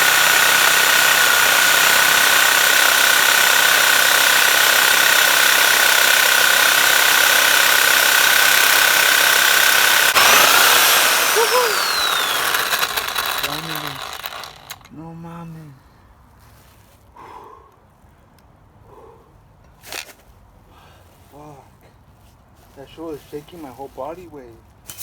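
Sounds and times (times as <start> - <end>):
power saw cutting metal: 0.0 - 14.9.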